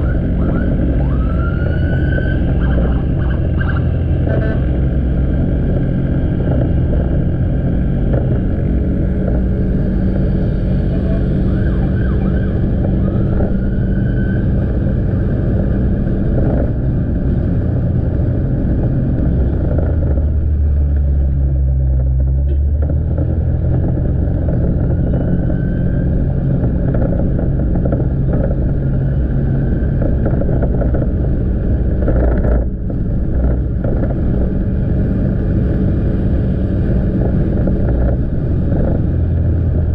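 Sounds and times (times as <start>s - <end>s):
road noise: 0.0s - 39.9s.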